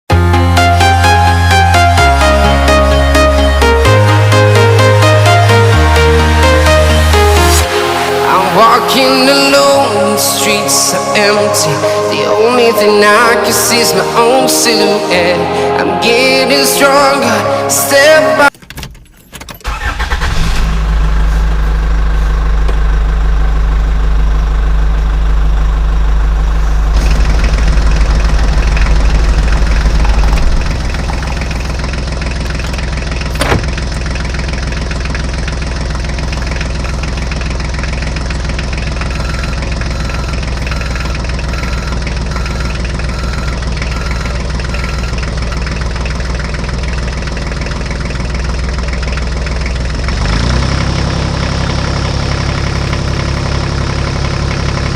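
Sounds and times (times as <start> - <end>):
tractor engine running: 18.5 - 54.9
faint repeating beep: 39.1 - 45.6.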